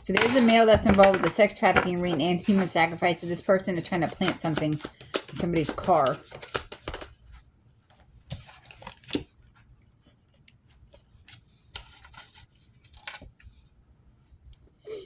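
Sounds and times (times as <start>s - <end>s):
playing cards shuffling: 0.1s - 7.3s.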